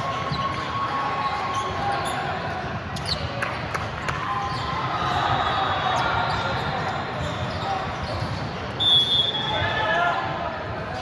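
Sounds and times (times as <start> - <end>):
sneakers squeaking on gym floor: 6.0 - 9.4.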